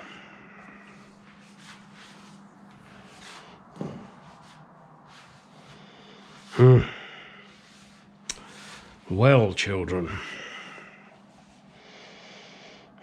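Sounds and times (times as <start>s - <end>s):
steady low hum: 0.0s - 13.0s
man humming: 6.5s - 7.1s.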